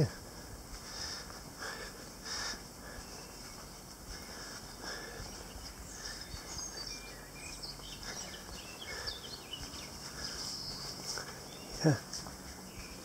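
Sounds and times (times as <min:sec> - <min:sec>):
steady background hiss: 0:00.0 - 0:13.0
birds chirping and whistling: 0:00.9 - 0:13.0.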